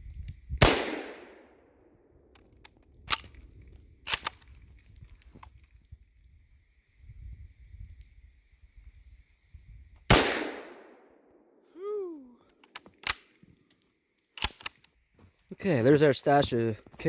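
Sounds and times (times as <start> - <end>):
small clicks: 2.3 - 6.3, 12.5 - 15.5
loud sharp crack: 10.1 - 11.0.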